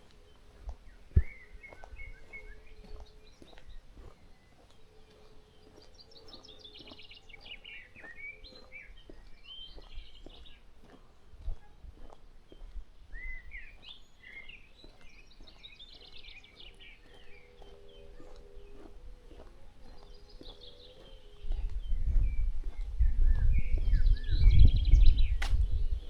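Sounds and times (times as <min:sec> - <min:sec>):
birds singing and chirping: 0:00.0 - 0:26.0
sharp low thump: 0:25.0 - 0:26.0.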